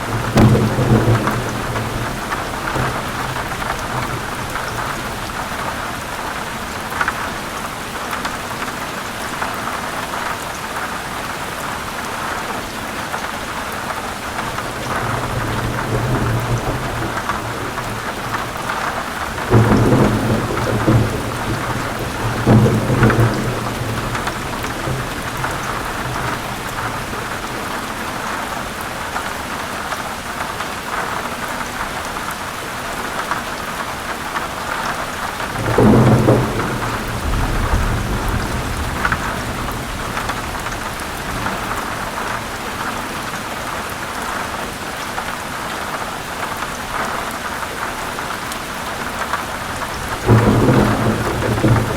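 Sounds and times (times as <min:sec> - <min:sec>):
thunder rumbling: 0:00.0 - 0:07.0, 0:14.4 - 0:28.5, 0:35.2 - 0:43.3, 0:49.2 - 0:51.9
loud thunderclaps: 0:00.0 - 0:07.2, 0:14.3 - 0:28.5, 0:35.2 - 0:43.0, 0:49.1 - 0:51.9
heavy rain on leaves: 0:00.0 - 0:51.9.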